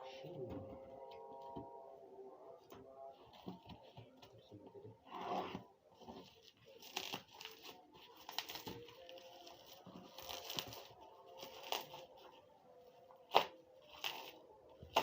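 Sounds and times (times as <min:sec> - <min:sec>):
packaging being torn and crinkled: 0:06.7 - 0:12.3, 0:13.2 - 0:15.0.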